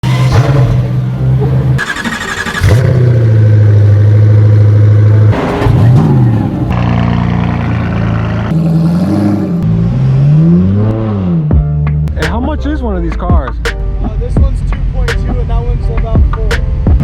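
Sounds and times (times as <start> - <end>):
loud car exhaust drone: 2.6 - 11.8.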